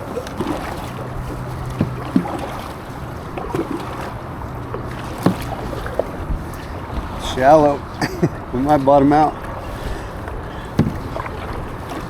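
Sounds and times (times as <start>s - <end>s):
water noise: 0.0s - 12.0s
sharp knocks: 5.2s - 5.8s, 10.7s - 11.3s
wind noise on microphone: 5.5s - 12.0s.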